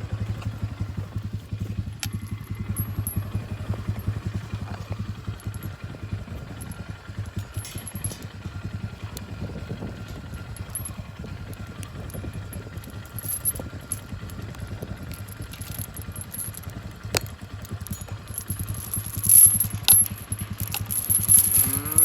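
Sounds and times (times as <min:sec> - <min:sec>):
atv engine idling: 0:00.0 - 0:22.0
metallic clinks and rattles: 0:00.3 - 0:22.0
cow mooing: 0:21.5 - 0:22.0.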